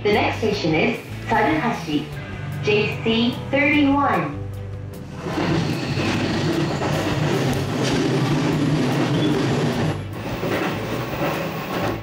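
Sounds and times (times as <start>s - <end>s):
train motor hum: 5.0s - 12.0s
wheels rumbling on rail: 5.0s - 12.0s.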